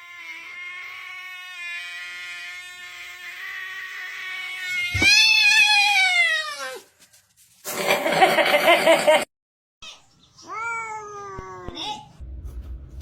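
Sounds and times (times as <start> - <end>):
cat yowling: 0.0 - 6.9.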